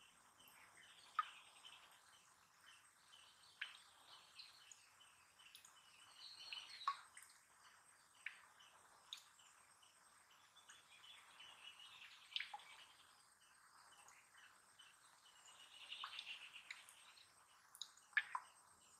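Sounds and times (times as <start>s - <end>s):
bird chirps: 0.0s - 7.2s, 8.1s - 17.3s.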